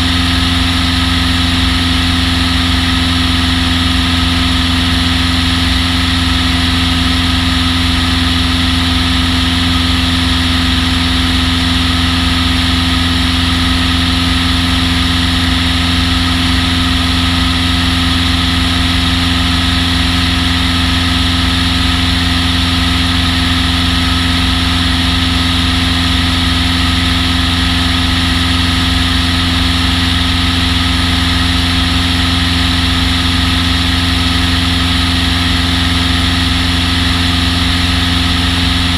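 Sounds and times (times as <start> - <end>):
piston engine running: 0.0 - 38.9.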